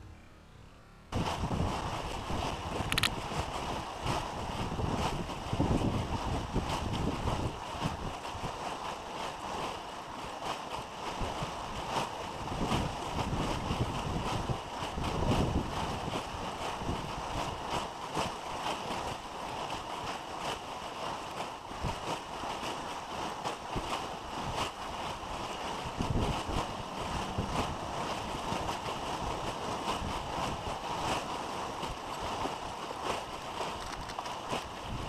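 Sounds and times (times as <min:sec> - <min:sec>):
wind: 0:00.0 - 0:35.0
rushing water: 0:01.2 - 0:35.0
small crackles: 0:02.8 - 0:03.2, 0:33.0 - 0:34.9.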